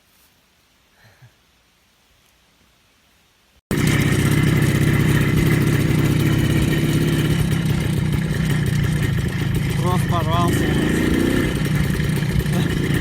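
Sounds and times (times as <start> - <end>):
motorcycle engine running: 3.7 - 13.0.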